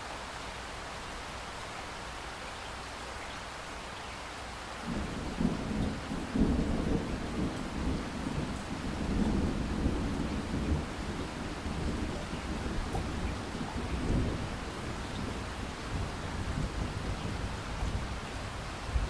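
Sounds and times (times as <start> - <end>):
rain hiss: 0.0 - 19.0
rolling thunder: 4.9 - 19.0.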